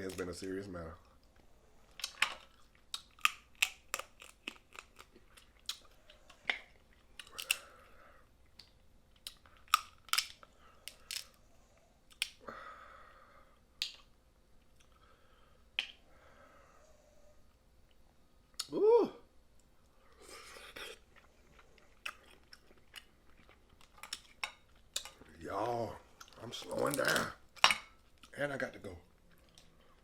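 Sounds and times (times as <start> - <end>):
chewing: 1.0 - 12.4, 19.8 - 28.4, 29.1 - 30.0
crab shell cracking: 1.9 - 7.8, 8.5 - 11.4, 12.1 - 12.4, 22.0 - 25.3.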